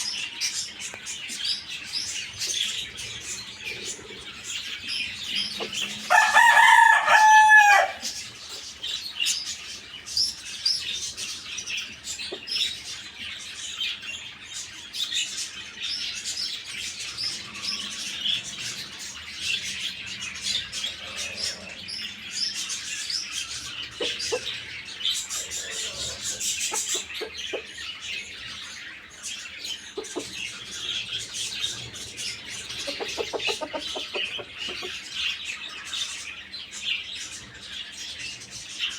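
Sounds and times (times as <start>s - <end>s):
chickens clucking: 0.0s - 13.4s, 17.0s - 38.9s
small birds chirping: 0.0s - 38.9s
rooster crowing: 5.8s - 8.2s.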